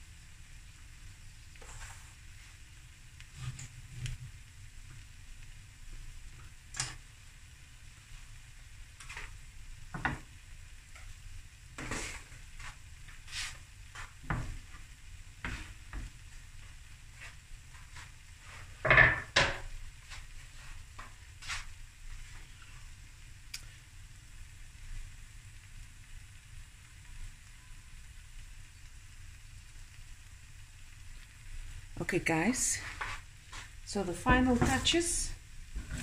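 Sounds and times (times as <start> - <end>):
fried rice sizzling in a pan: 0.0 - 36.0
kitchenware knocking and clattering: 18.8 - 19.7.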